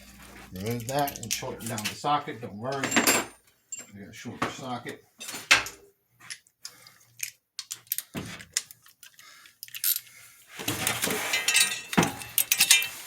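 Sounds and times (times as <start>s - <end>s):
metal tools clinking: 0.1s - 2.0s, 2.7s - 4.0s, 7.2s - 10.1s, 10.7s - 13.0s.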